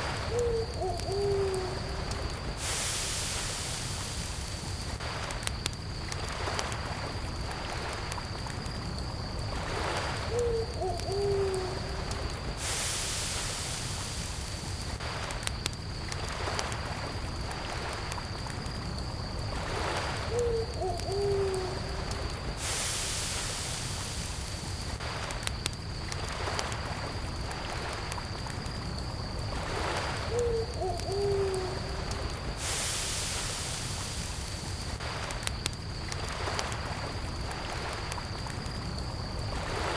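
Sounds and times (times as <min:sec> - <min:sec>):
crickets trilling: 0:00.0 - 0:39.9
owl hooting: 0:00.3 - 0:01.9, 0:10.3 - 0:11.9, 0:20.3 - 0:21.9, 0:30.3 - 0:32.0
campfire crackling and popping: 0:04.5 - 0:10.0, 0:14.5 - 0:19.4, 0:24.4 - 0:30.0, 0:34.4 - 0:39.7.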